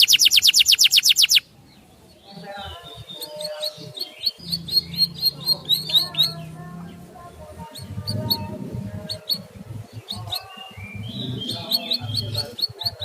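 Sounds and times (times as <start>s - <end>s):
whistled bird notes: 0.0s - 1.4s, 9.1s - 13.0s
songbirds chirping: 0.0s - 13.0s
low background rumble: 4.3s - 13.0s.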